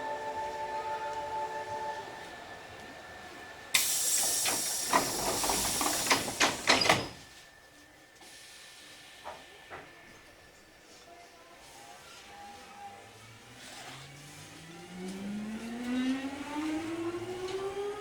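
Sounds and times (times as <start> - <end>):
compressed air hissing from train doors: 3.7 - 7.4, 8.2 - 9.6.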